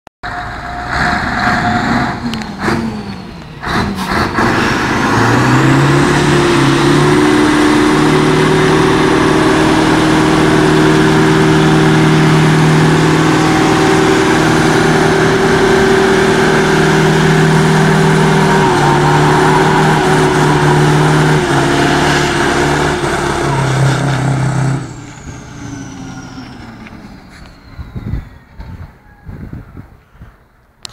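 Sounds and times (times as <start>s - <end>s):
truck engine revving: 0.2s - 28.6s.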